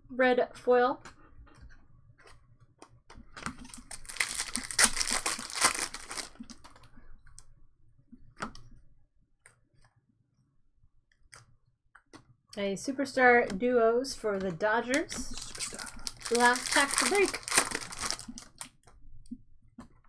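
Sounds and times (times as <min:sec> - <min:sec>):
wrapper tearing and crinkling: 0:03.5 - 0:06.8, 0:15.0 - 0:18.7.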